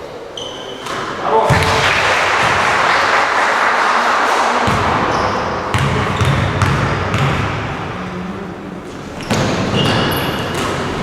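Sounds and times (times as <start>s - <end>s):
dull thumps in echoing room: 0.8s - 2.9s, 4.6s - 7.8s, 9.2s - 11.0s.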